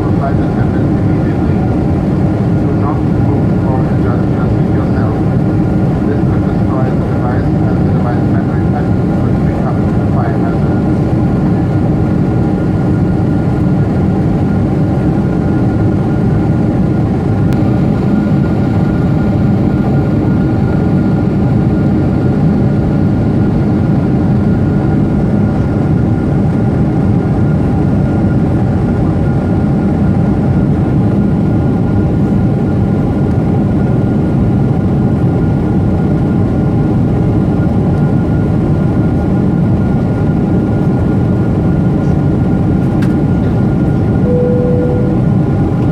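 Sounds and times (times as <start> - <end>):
jet engine cabin rumble: 0.0 - 45.9
thin steady whine: 44.2 - 45.9.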